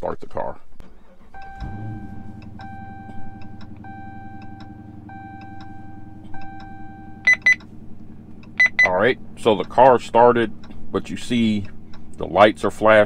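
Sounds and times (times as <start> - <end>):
car engine idling: 0.8 - 13.0
short sharp beeps: 1.4 - 7.7, 8.5 - 9.0
dashboard warning chime: 1.4 - 9.9
steady ticking: 1.4 - 13.0.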